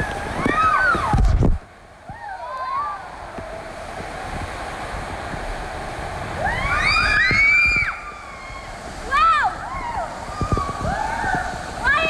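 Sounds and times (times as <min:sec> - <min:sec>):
children squealing: 0:00.0 - 0:01.2, 0:06.4 - 0:12.0
rushing splashing water: 0:00.0 - 0:12.0.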